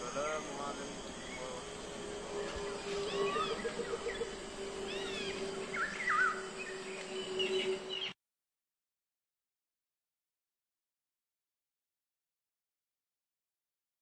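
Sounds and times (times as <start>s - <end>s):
jungle birds whistling calls: 0.0s - 8.2s
steady low drone: 0.0s - 8.2s.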